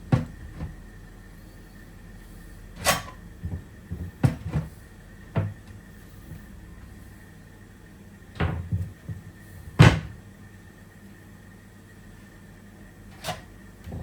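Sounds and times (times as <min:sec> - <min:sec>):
steady low hum: 0:00.0 - 0:14.0
hard objects knocking and clunking: 0:00.1 - 0:00.8, 0:03.4 - 0:04.7.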